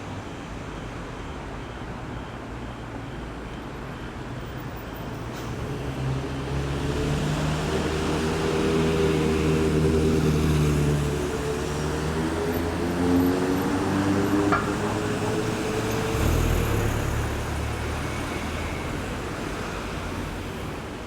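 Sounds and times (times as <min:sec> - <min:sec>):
road traffic: 0:00.0 - 0:21.0
large vehicle engine approaching: 0:05.6 - 0:20.4.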